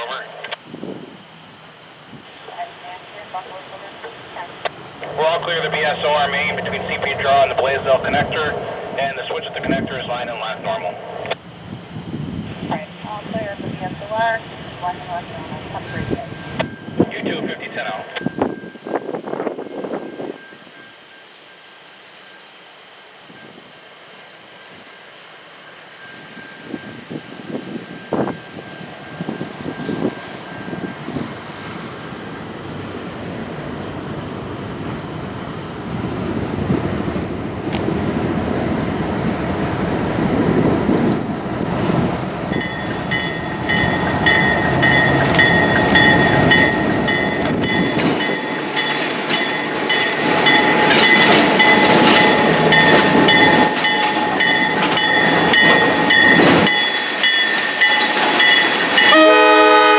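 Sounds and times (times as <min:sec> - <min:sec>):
diesel train rumbling: 0:00.0 - 0:59.9
bell ringing rapidly: 0:42.5 - 0:59.2.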